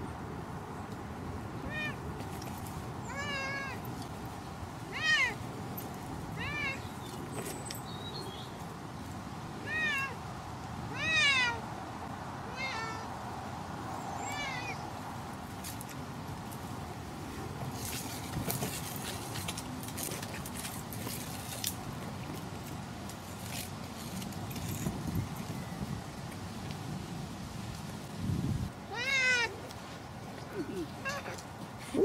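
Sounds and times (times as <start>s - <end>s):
cat meowing: 6.4s - 6.8s, 28.9s - 29.6s.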